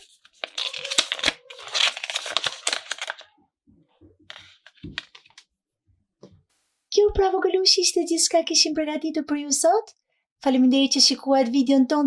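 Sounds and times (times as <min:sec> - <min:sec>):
packaging tearing and crinkling: 0:00.0 - 0:03.3, 0:04.3 - 0:05.4.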